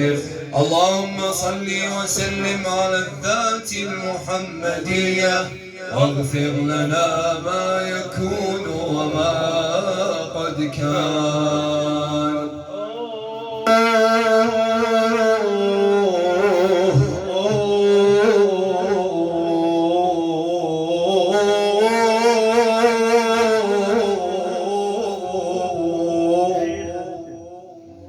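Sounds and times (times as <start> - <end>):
man singing ornamented melody: 0.0 - 28.0.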